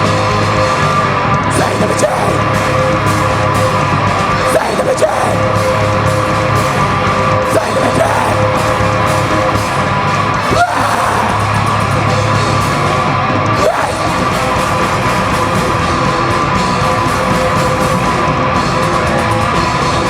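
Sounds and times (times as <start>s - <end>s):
heavy metal band playing: 0.0s - 20.0s
person shouting vocals: 1.5s - 2.6s, 4.4s - 5.6s, 7.4s - 8.6s, 10.4s - 11.6s, 13.6s - 14.3s.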